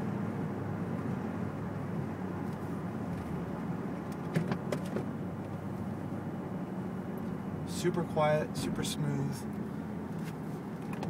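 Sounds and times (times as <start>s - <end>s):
car cabin engine and tyre hum: 0.0s - 11.0s.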